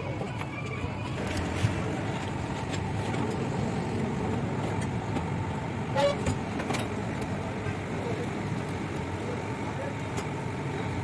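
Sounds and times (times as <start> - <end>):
traffic rumble: 0.0 - 11.0
car horn toot: 5.9 - 6.4.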